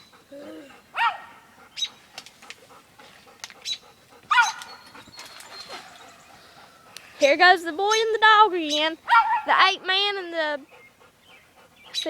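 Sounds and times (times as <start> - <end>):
dog yelping: 0.5 - 2.0, 3.6 - 7.0, 7.9 - 9.7.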